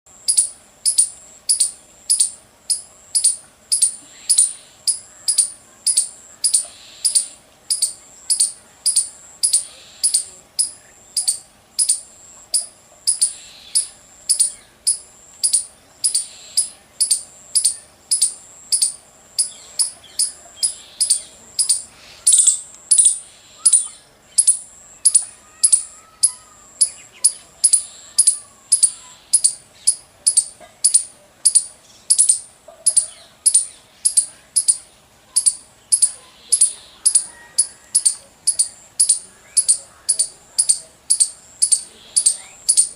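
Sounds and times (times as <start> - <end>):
small creature chirping: 13.1 - 34.8, 35.4 - 42.9.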